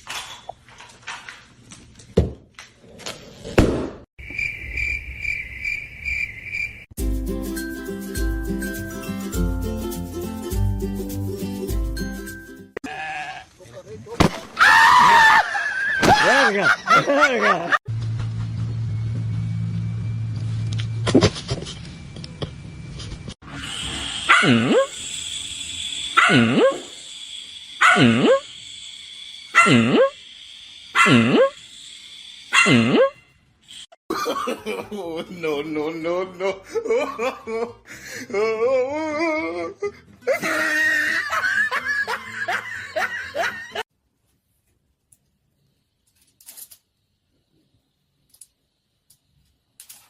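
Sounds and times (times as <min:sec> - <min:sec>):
person laughing hard: 0:14.9 - 0:17.8, 0:34.1 - 0:43.8
dog barking in long calls: 0:24.2 - 0:24.9, 0:26.1 - 0:26.8, 0:27.8 - 0:28.4, 0:29.5 - 0:30.1.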